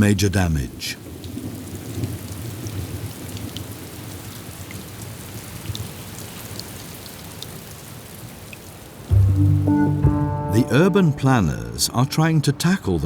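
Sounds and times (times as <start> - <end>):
rain on hard surfaces: 0.0 - 9.1.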